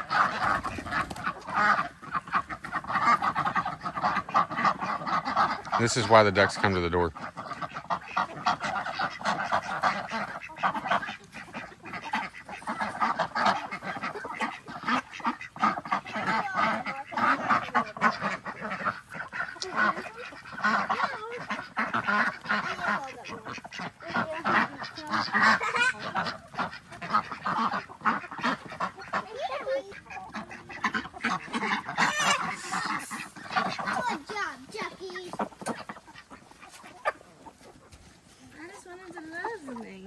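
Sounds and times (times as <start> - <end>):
ducks quacking: 0.0 - 40.0.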